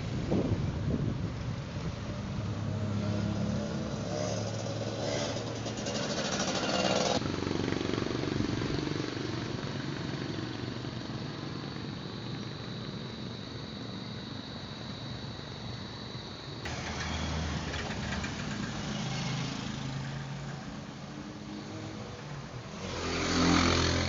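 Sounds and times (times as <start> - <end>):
motorcycle engine revving: 2.3 - 9.5, 16.7 - 24.0
quieter engine running: 16.7 - 24.0.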